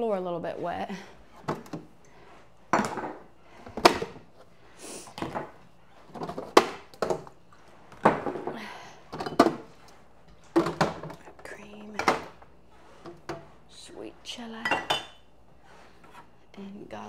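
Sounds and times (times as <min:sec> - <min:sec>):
jars clunking on fridge shelves: 0:01.4 - 0:01.9, 0:02.7 - 0:04.3, 0:05.1 - 0:12.4, 0:14.5 - 0:15.3.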